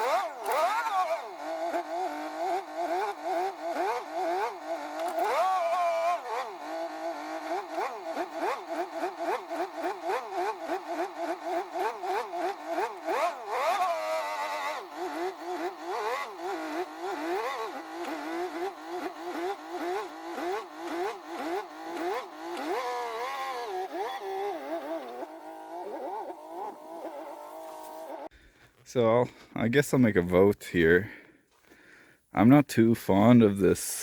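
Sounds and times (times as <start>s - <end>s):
diesel truck engine revving: 0.0s - 28.4s.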